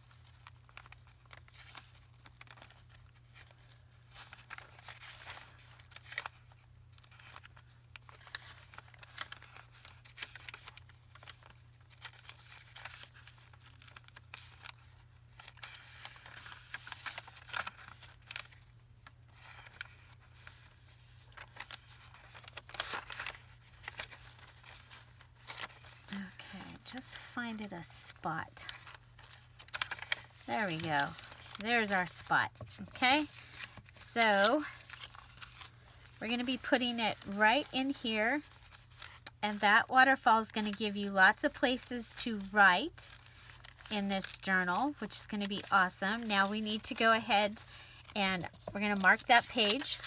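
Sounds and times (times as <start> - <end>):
paper rustling and crinkling: 0.0 - 50.0
faint low hum: 25.6 - 38.8.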